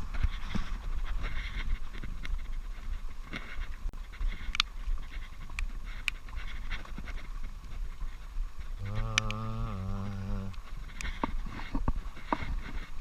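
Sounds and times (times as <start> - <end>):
low steady hum: 0.0 - 13.0
wind rumble on microphone: 0.0 - 13.0
sharp clicks: 8.8 - 9.5.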